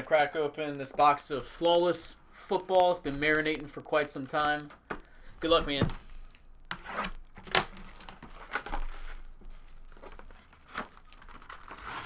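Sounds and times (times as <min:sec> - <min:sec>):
plastic wrap tearing and crinkling: 0:05.4 - 0:12.0.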